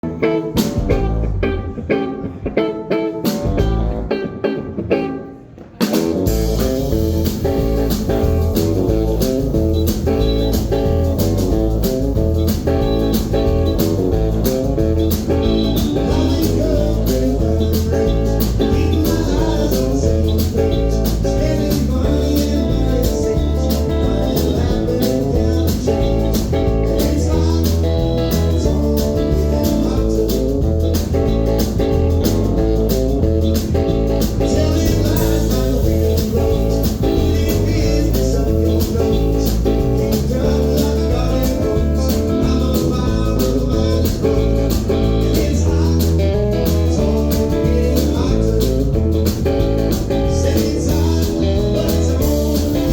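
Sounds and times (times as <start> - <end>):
live blues-rock band playing: 0.0 - 52.9.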